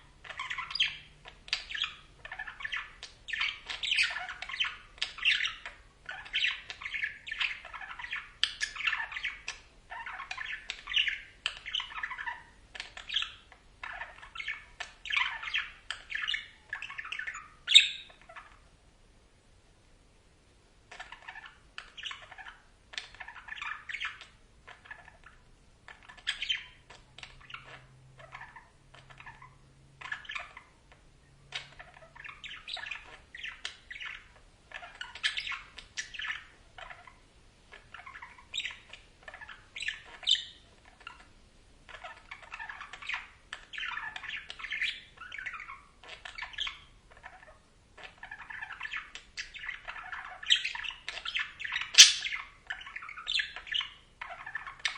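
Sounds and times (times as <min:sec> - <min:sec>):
budgerigars chattering: 0:00.2 - 0:18.6, 0:31.6 - 0:41.3, 0:41.9 - 0:54.9.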